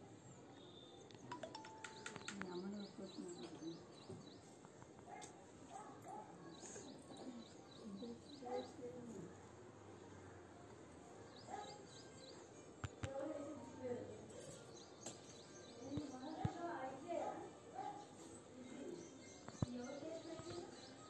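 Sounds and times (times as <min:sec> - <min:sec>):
small birds chirping: 0:00.2 - 0:09.5, 0:11.2 - 0:21.0
sharp clicks: 0:01.1 - 0:02.6.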